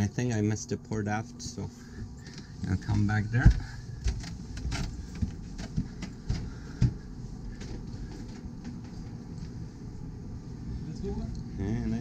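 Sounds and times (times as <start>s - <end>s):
steady low hum: 0.0s - 12.0s
footsteps on boat: 1.9s - 9.7s.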